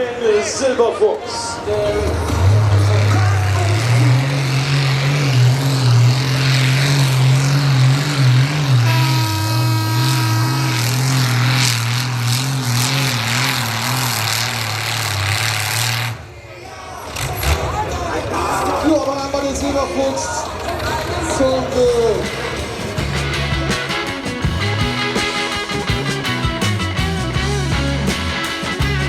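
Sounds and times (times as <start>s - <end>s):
tractor engine under load: 1.2s - 16.3s.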